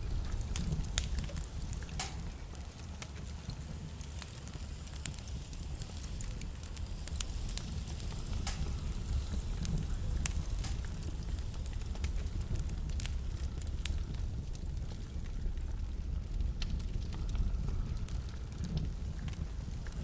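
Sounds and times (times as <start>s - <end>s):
burning logs crackling and popping: 0.0s - 20.0s
low rumble of flames: 0.0s - 20.0s.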